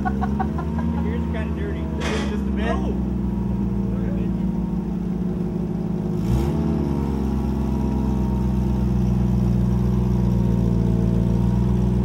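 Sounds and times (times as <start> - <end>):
pickup truck engine idling: 0.0 - 6.2.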